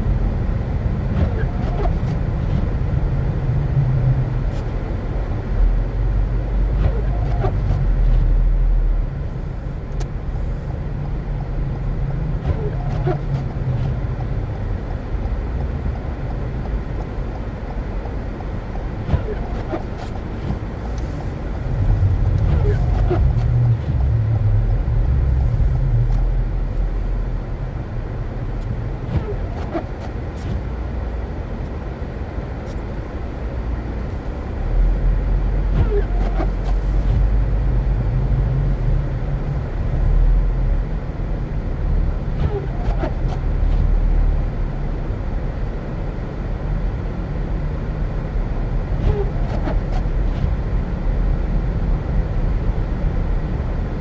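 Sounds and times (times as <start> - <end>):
car engine and tyres rumbling: 0.0 - 54.0
faint clicks and squeaks: 12.4 - 14.4, 16.2 - 27.2, 35.8 - 37.4, 42.3 - 43.9.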